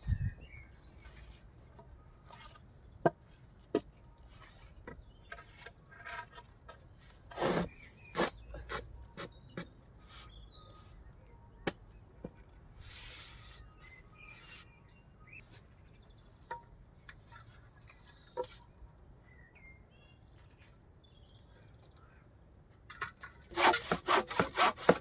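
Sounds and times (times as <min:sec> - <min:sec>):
timber scraping: 0:05.2 - 0:10.4, 0:23.5 - 0:25.0.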